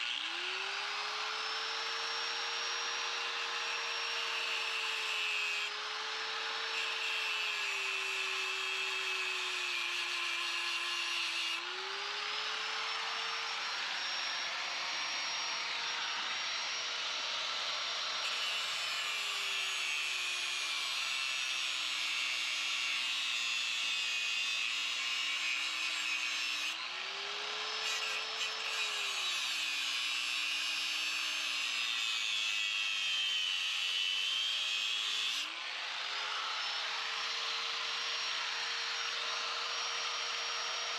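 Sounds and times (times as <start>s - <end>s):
small motor running: 11.7s - 17.2s.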